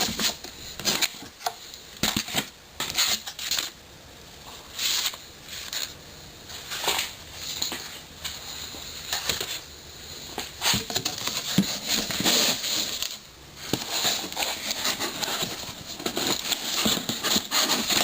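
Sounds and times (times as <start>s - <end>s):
packing material rustling: 10.4s - 18.0s.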